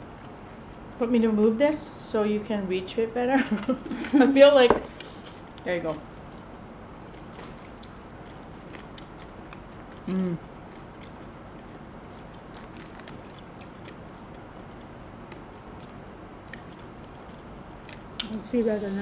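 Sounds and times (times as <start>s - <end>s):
people chewing: 7.0s - 19.0s.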